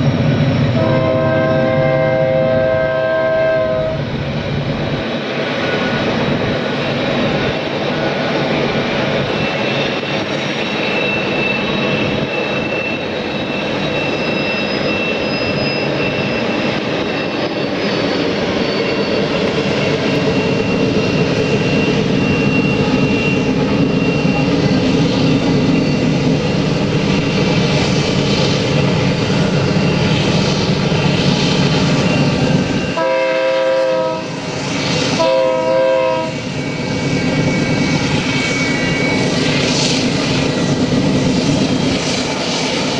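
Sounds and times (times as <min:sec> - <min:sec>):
train rumbling: 0:00.0 - 0:42.9
train horn blasts: 0:00.8 - 0:04.0, 0:32.9 - 0:34.5, 0:35.2 - 0:36.4.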